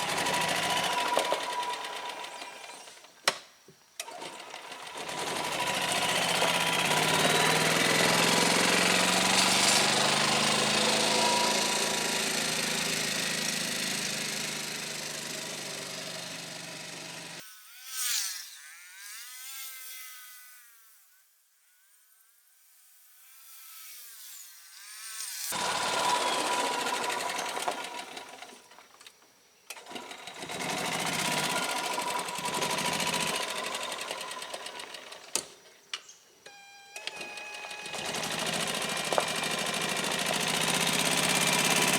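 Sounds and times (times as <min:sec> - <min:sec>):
golf cart engine running: 0:00.0 - 0:02.4, 0:05.0 - 0:17.4, 0:25.6 - 0:28.3, 0:30.4 - 0:34.8, 0:37.6 - 0:41.9.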